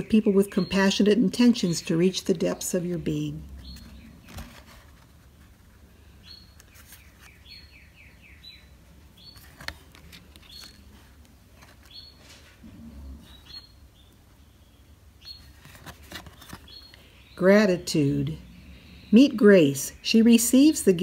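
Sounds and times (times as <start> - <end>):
high bird chirps: 6.2 - 9.6.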